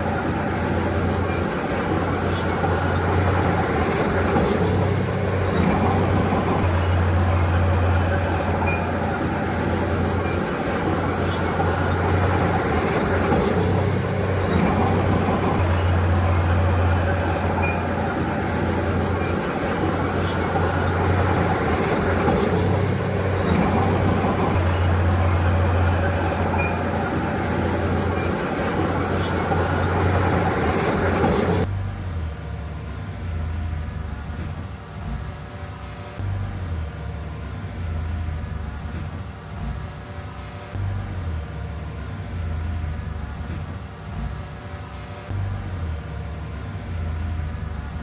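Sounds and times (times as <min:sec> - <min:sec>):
grinding rattle: 0:00.0 - 0:31.7
short high squeaks: 0:00.0 - 0:31.7
bulldozer diesel engine running: 0:00.0 - 0:39.9, 0:40.7 - 0:48.0.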